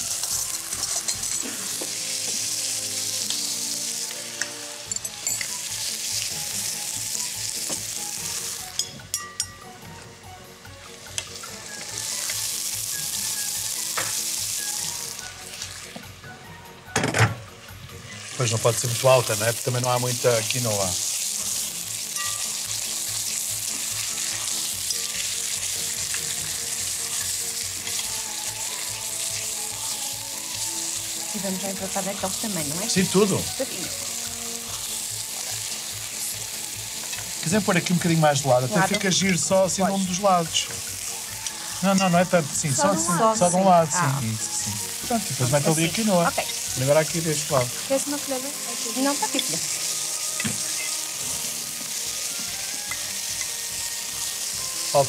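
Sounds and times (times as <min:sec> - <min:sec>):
food sizzling in a pot: 0:00.0 - 0:55.0
spoon stirring: 0:00.3 - 0:01.4.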